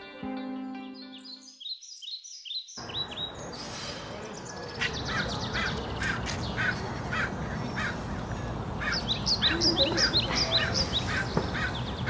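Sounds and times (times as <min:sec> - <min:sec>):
rushing background noise: 0:02.8 - 0:12.0.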